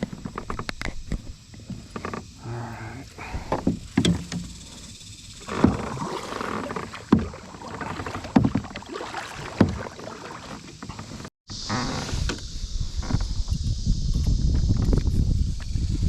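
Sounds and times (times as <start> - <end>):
kayak paddle strokes in water: 0.0 - 11.3.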